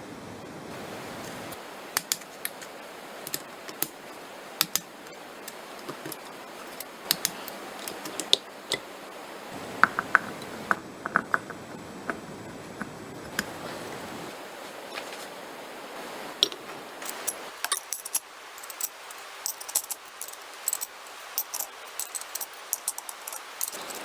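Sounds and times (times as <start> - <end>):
steady hiss: 0.0 - 24.0
small metal parts clinking: 16.4 - 24.0.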